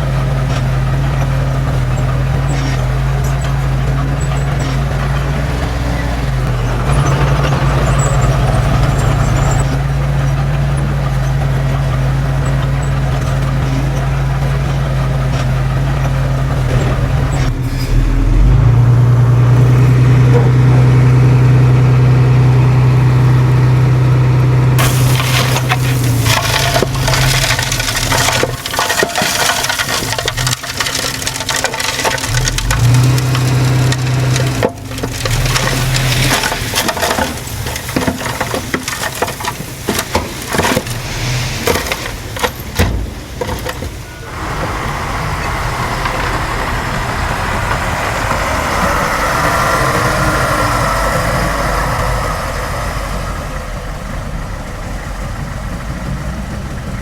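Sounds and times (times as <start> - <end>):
diesel engine running under load: 0.0 - 57.0
material cracking and crunching: 24.8 - 44.1.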